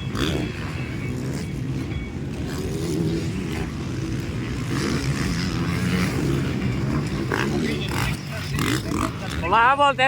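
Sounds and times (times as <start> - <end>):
dirt bike engines droning: 0.0 - 10.0.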